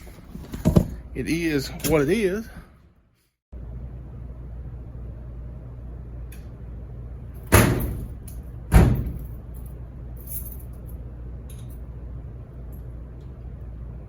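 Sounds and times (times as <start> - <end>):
low hum of machines: 0.0 - 14.0
loud slams: 7.5 - 9.3.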